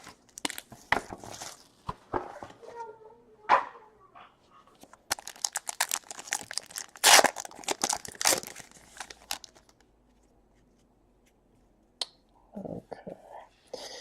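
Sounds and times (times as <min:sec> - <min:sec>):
packaging being torn and crumpled: 0:00.0 - 0:01.8, 0:05.0 - 0:09.8.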